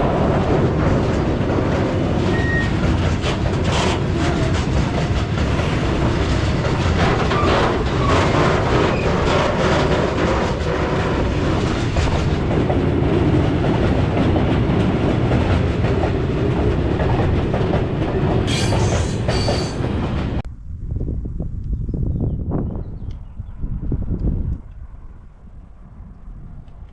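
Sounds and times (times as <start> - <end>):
freight train wheels clattering: 0.0 - 20.4
high-pitched wheel squeal: 2.3 - 2.8, 18.5 - 19.8.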